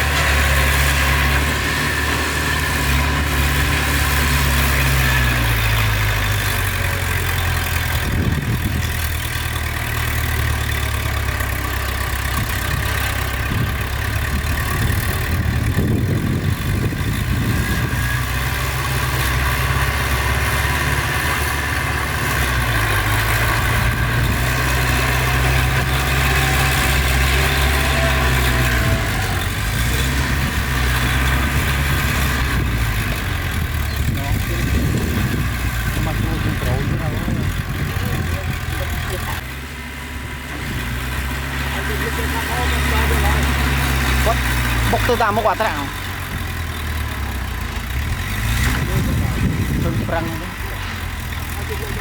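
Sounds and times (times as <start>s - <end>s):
heavy diesel engine running: 0.0s - 52.0s.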